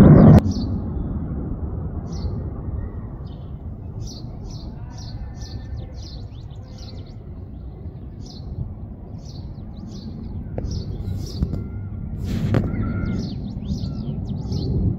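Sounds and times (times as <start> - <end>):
distant jet engine rumble: 0.0 - 14.9
small birds chirping: 2.0 - 14.9.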